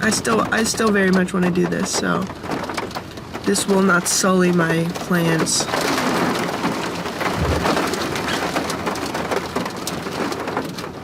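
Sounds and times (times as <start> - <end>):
rain falling: 0.0 - 11.0
low thump: 7.3 - 8.2.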